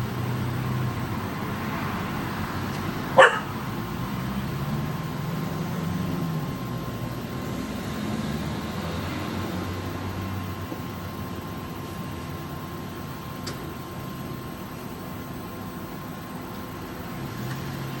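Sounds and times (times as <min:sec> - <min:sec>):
dog barking: 0:03.2 - 0:03.6.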